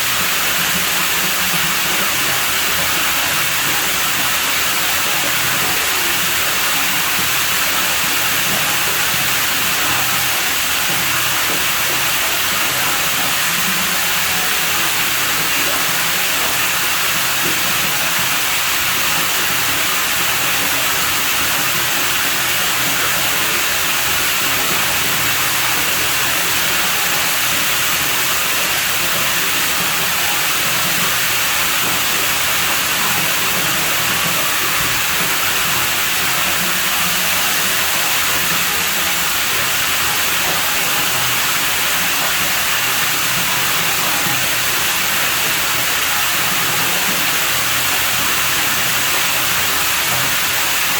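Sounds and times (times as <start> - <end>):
pool water running: 0.0 - 50.9.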